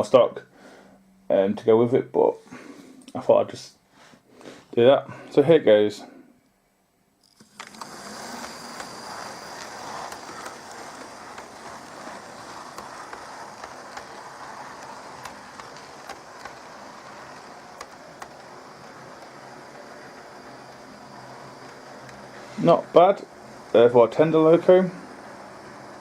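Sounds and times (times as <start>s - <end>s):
faint high whine: 4.7s - 26.0s
model train motor whirring: 7.2s - 26.0s.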